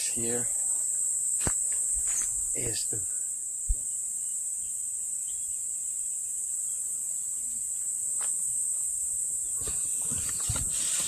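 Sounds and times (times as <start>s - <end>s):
insects chirring: 0.0s - 11.0s
sharp click: 1.4s - 1.7s.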